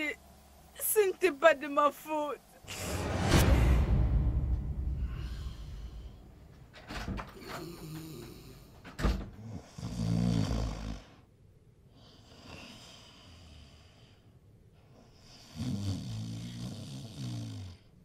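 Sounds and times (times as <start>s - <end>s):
person snoring: 7.4s - 8.7s, 9.5s - 11.2s, 15.2s - 17.9s.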